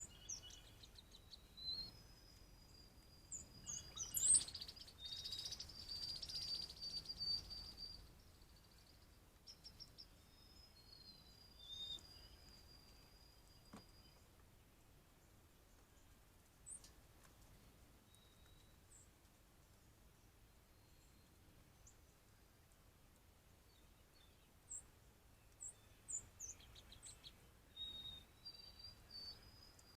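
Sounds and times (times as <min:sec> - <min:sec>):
thin whistled bird notes: 0:00.0 - 0:14.3, 0:16.6 - 0:19.1, 0:20.5 - 0:22.1, 0:23.7 - 0:30.0
faint high bird chirps: 0:00.0 - 0:14.4, 0:18.0 - 0:19.1, 0:20.5 - 0:22.2, 0:23.7 - 0:30.0.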